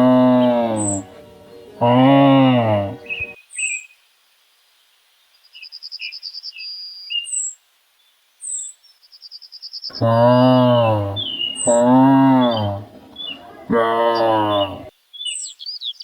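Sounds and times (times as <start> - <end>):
cow mooing: 0.0 - 3.2, 10.0 - 12.9, 13.7 - 14.9
birdsong chirps and trills: 0.0 - 16.0.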